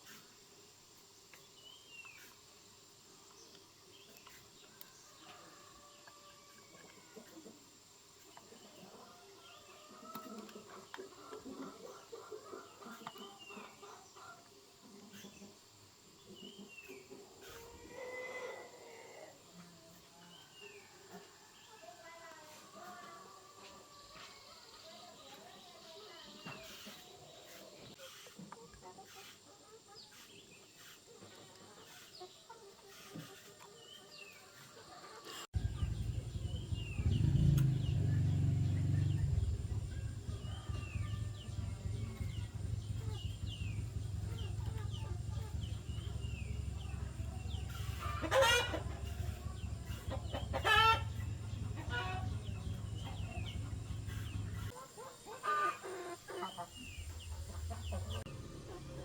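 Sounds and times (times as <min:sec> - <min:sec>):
small birds chirping: 0:01.0 - 0:05.4, 0:24.0 - 0:59.0
rooster crowing: 0:05.2 - 0:07.2, 0:35.6 - 0:54.5
low steady hum: 0:35.6 - 0:54.7, 0:56.8 - 0:59.0.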